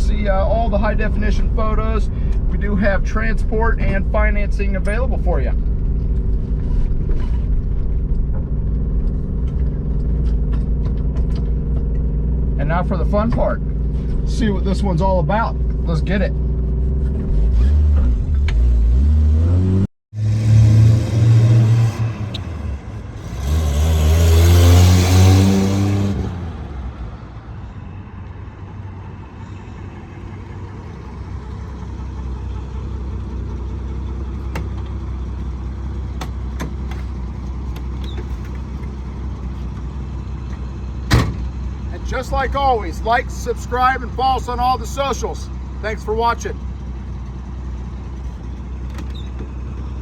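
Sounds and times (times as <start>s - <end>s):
car engine accelerating hard: 0.0s - 27.4s
road noise: 0.0s - 50.0s.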